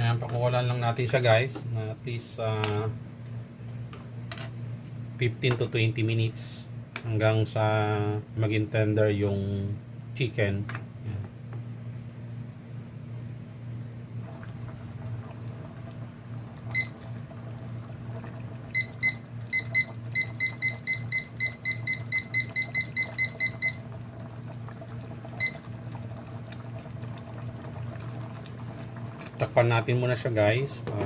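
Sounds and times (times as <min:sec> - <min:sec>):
appliance button beeps: 0:16.7 - 0:17.1, 0:18.7 - 0:23.9, 0:25.4 - 0:25.7.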